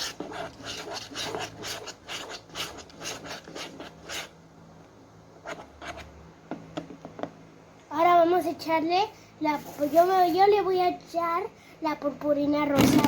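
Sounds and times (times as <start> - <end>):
spoon scraping slime: 0.0 - 4.3.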